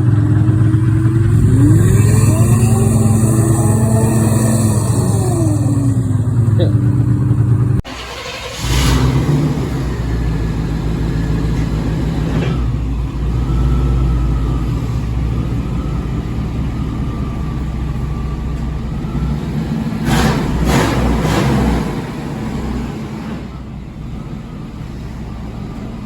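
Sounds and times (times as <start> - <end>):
snowmobile engine running: 0.0 - 8.1.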